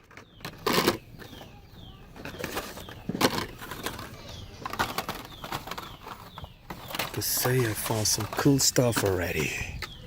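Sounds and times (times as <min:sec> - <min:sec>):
toy cars clattering: 0:00.0 - 0:10.0
sharp plastic clacks: 0:02.2 - 0:10.0.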